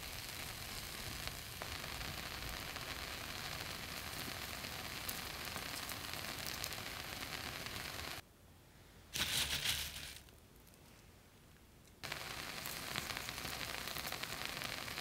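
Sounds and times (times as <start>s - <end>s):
egg sizzling in a pan: 0.0s - 8.2s, 12.0s - 15.0s
dry rustle and crunch: 9.2s - 11.0s.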